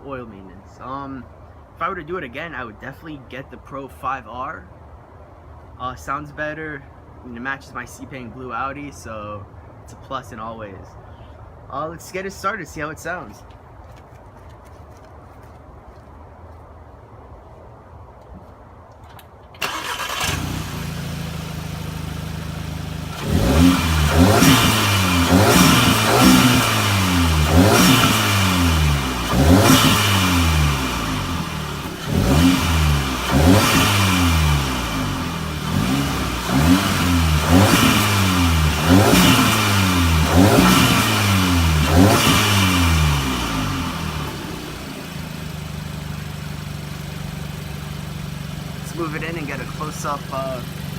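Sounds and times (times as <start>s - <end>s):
car engine revving: 19.6s - 50.9s.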